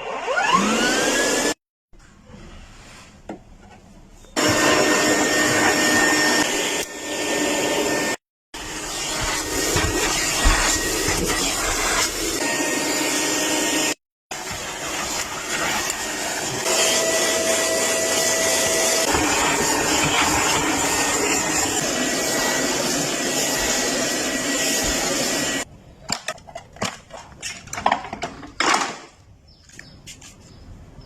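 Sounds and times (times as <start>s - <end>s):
vacuum cleaner running: 0.0s - 1.6s, 4.4s - 25.7s.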